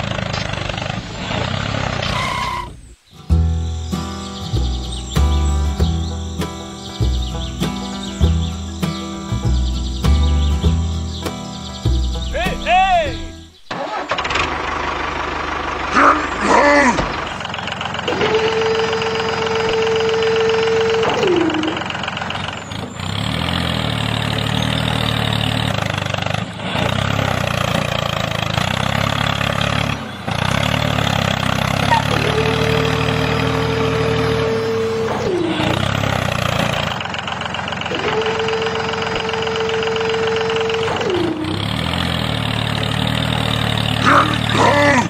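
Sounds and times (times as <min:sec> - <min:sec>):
tractor engine droning: 0:00.0 - 0:45.0
whine sliding down in pitch: 0:18.1 - 0:22.0.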